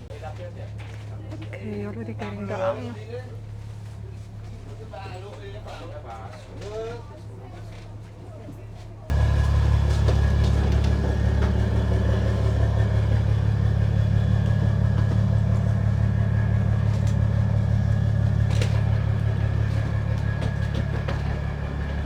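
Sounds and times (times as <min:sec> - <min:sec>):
car engine idling: 0:09.1 - 0:22.0.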